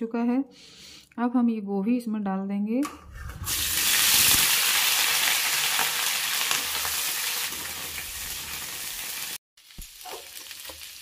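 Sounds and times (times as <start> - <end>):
cauliflower sizzling in hot oil: 3.8 - 11.0.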